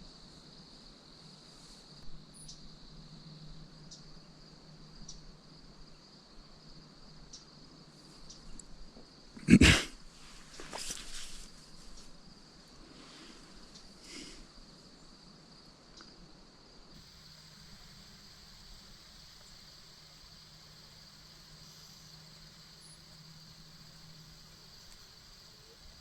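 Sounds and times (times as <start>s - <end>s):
soft rustle: 0.0s - 2.0s, 10.1s - 14.4s
insects trilling: 0.2s - 16.1s, 16.9s - 26.0s.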